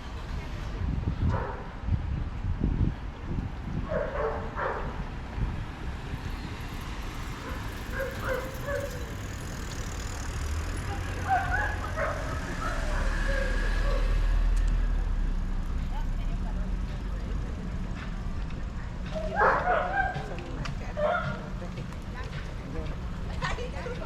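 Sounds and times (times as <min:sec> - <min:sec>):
traffic rumble: 0:00.0 - 0:24.0
dog barking: 0:01.3 - 0:01.7, 0:03.9 - 0:05.0, 0:07.4 - 0:09.1, 0:11.2 - 0:14.2, 0:19.2 - 0:20.3, 0:21.0 - 0:21.4
distant voices: 0:03.6 - 0:24.0.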